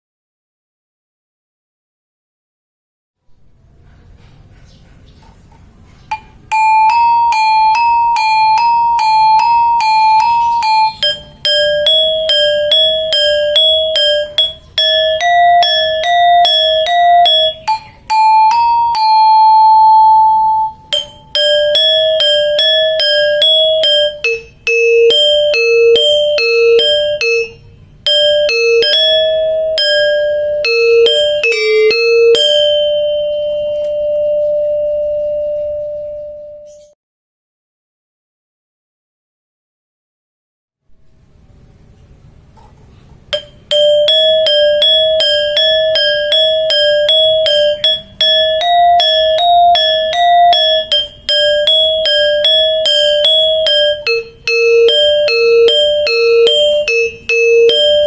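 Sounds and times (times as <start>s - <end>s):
metallophone notes: 6.1s - 37.0s, 43.3s - 58.0s.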